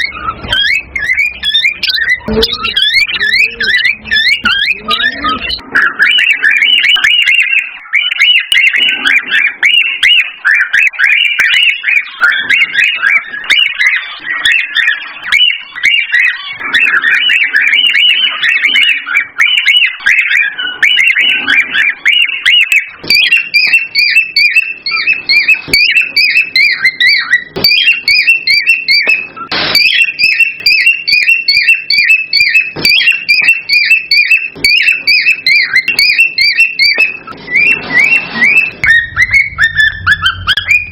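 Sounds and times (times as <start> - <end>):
cockatiels chirping and whistling: 0.0 - 40.9.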